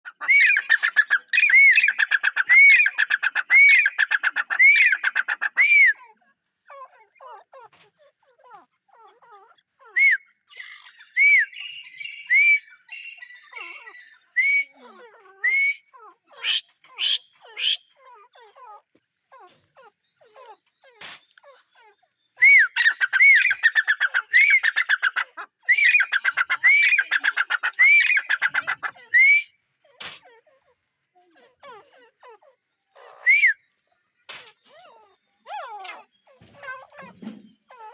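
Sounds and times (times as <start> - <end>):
francolin calling: 0.1 - 5.9, 22.4 - 29.5.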